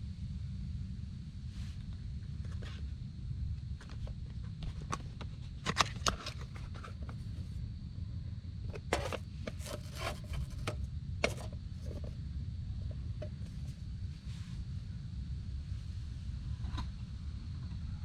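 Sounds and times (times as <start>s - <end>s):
steady low rumble: 0.0s - 5.6s, 6.4s - 18.0s
objects being handled: 8.7s - 12.1s.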